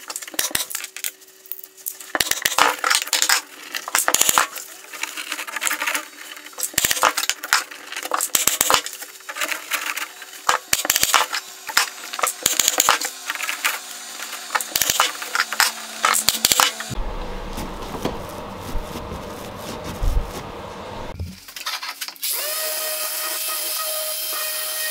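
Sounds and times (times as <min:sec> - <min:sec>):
power tool running: 0:10.1 - 0:21.2, 0:22.3 - 0:24.9.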